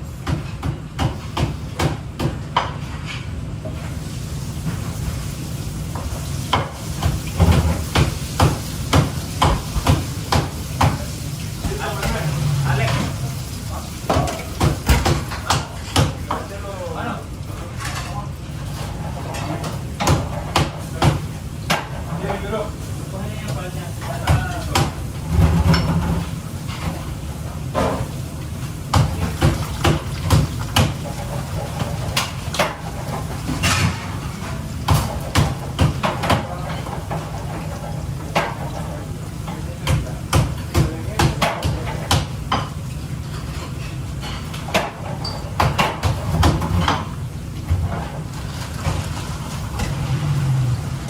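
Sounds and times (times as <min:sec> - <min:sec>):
cookware and utensils clattering: 0:17.6 - 0:22.7, 0:23.5 - 0:28.2, 0:28.9 - 0:51.0.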